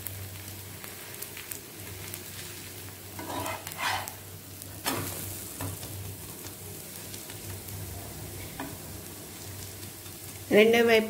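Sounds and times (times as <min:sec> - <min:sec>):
dosa sizzling on a hot pan: 0:00.0 - 0:11.0
spatula scraping pan: 0:03.2 - 0:04.2.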